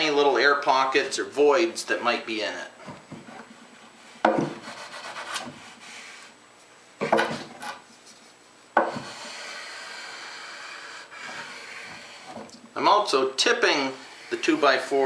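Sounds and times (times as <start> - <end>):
wood knocking on wood: 4.2 - 4.6, 7.0 - 7.6, 8.8 - 9.1
wood scraping along edge: 8.8 - 12.5, 13.7 - 15.0.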